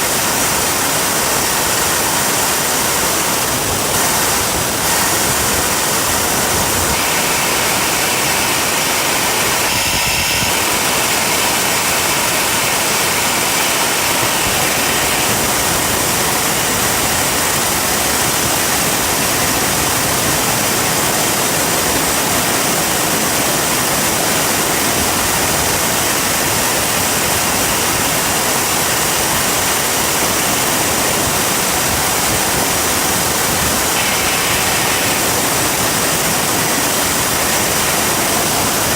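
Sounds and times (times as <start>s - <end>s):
jet engine roaring: 1.9s - 38.9s
faint high whine: 4.2s - 22.6s, 31.6s - 38.9s.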